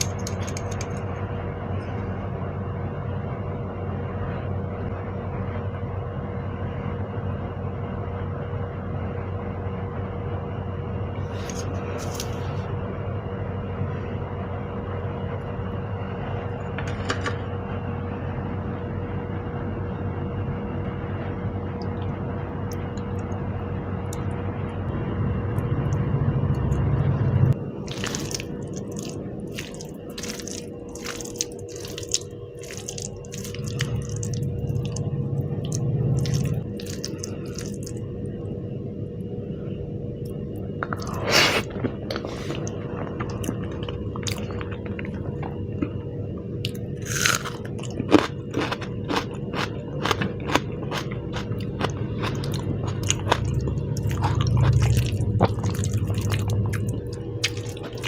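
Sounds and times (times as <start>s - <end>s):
chewing and crunching: 0.0s - 1.2s, 11.2s - 12.6s, 27.8s - 38.1s, 40.3s - 58.0s.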